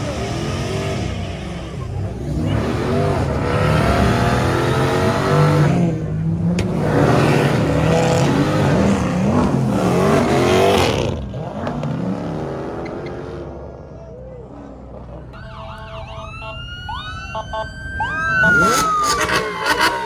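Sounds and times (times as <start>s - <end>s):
car engine revving hard: 0.0s - 13.5s, 18.4s - 20.0s.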